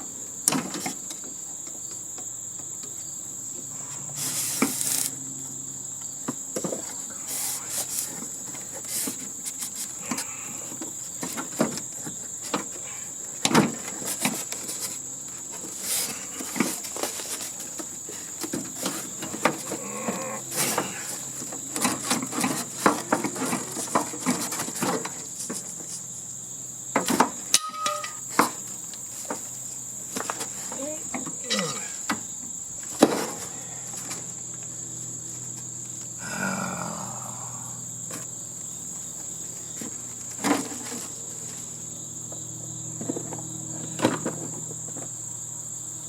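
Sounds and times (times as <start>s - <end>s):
high-pitched insect chorus: 0.0s - 46.0s
hand tools on sheet metal: 27.0s - 28.6s, 31.4s - 32.2s.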